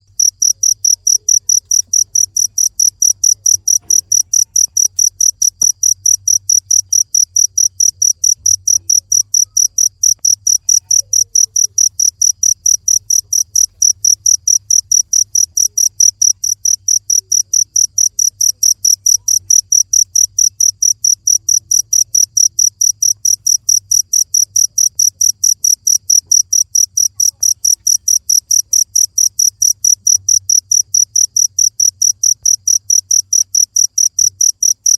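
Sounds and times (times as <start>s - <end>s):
cricket chirping: 0.0s - 34.9s.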